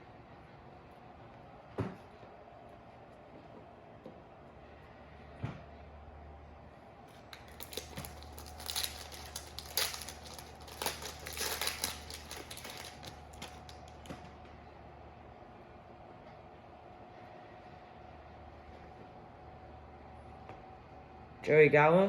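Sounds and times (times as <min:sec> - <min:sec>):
foil wrapper crinkling: 0:07.2 - 0:14.1.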